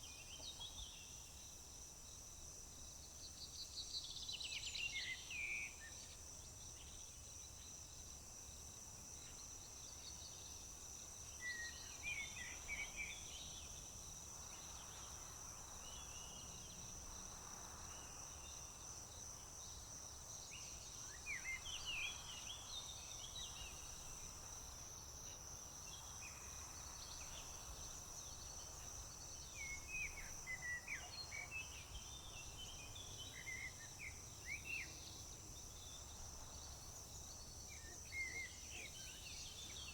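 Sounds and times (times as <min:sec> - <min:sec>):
songbird singing: 0:27.0 - 0:39.9.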